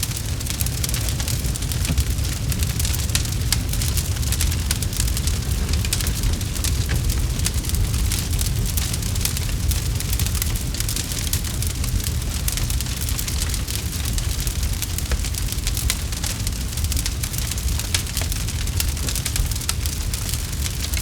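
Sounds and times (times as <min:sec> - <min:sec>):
low rumble: 0:00.0 - 0:16.2
campfire crackling and popping: 0:00.0 - 0:21.0.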